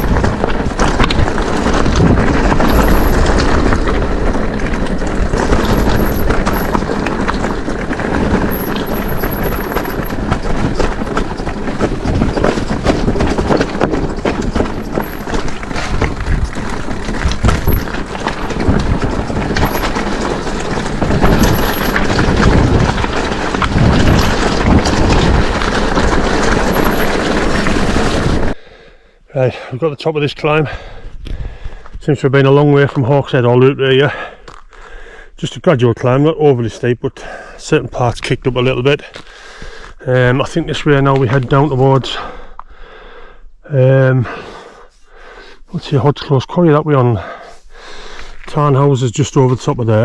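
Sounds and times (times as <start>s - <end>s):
bike frame rattle: 0.0s - 28.6s
tyres crunching on stones: 0.0s - 28.6s
wind buffeting microphone: 0.0s - 28.6s.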